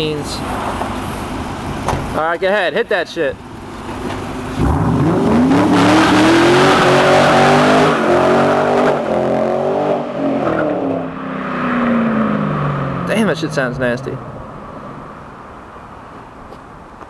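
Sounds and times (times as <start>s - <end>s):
car engine accelerating hard: 3.9s - 15.3s.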